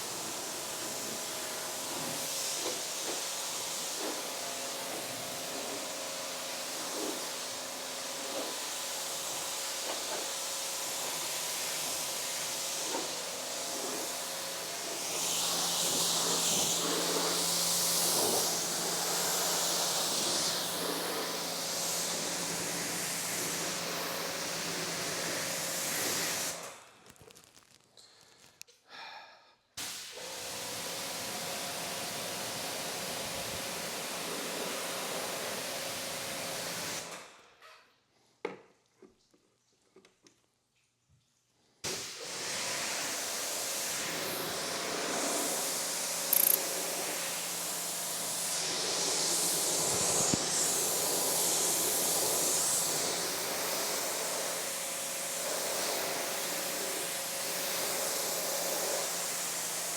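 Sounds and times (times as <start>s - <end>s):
pressure washer spraying water: 0.0s - 26.7s, 29.8s - 37.1s, 41.9s - 59.9s.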